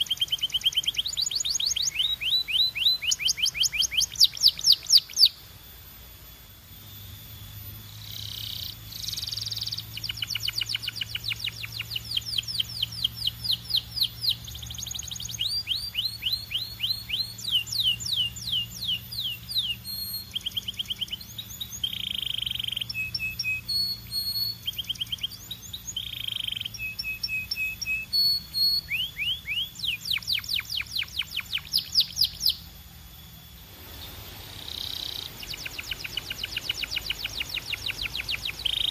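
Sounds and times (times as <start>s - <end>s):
canary singing rolling trills: 0.0s - 5.5s, 6.8s - 38.9s.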